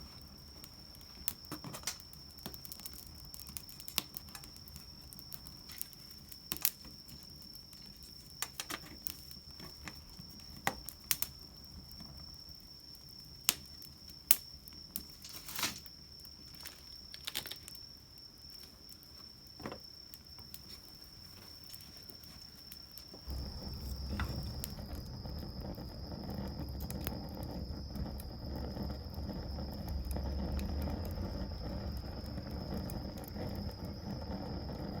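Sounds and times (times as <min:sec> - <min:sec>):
wood fire crackling and popping: 0:00.0 - 0:35.0
steady high-pitched tone: 0:23.3 - 0:27.6
low rumbling noise: 0:23.3 - 0:35.0.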